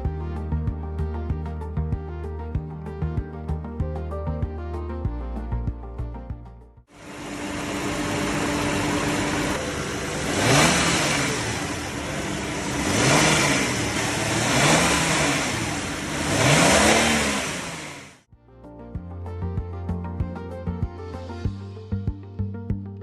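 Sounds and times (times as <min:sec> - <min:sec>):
car engine revving: 0:07.0 - 0:18.2.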